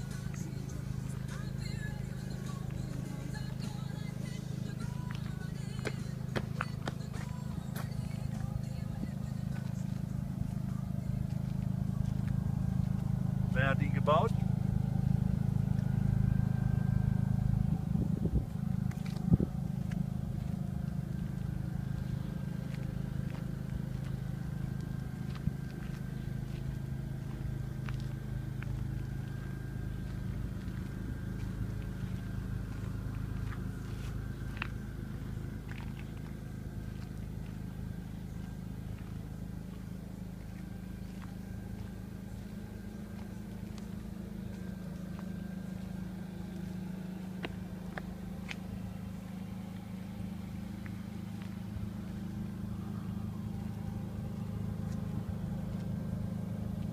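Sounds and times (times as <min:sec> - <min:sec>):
engine humming: 0:00.0 - 0:56.9.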